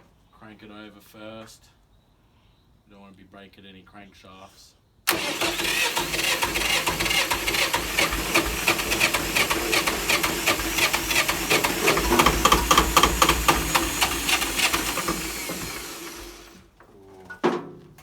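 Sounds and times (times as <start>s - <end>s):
diesel engine cranking on starter: 5.1s - 16.7s.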